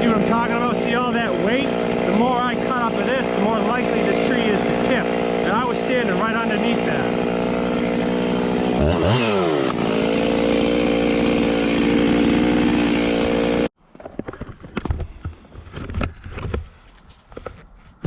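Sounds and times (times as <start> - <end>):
chainsaw running at high revs: 0.0 - 13.7
knocks and handling sounds: 13.8 - 18.0.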